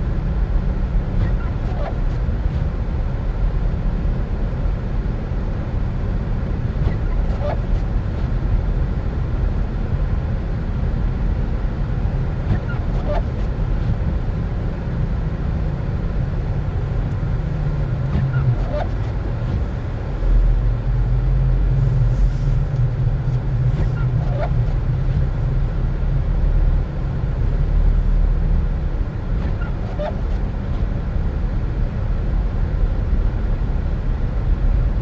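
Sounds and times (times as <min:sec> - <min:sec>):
car driving on snow: 0:00.0 - 0:35.0
faint short squeak: 0:01.2 - 0:02.7, 0:06.8 - 0:08.3, 0:12.5 - 0:14.0, 0:16.5 - 0:25.8, 0:29.4 - 0:30.9.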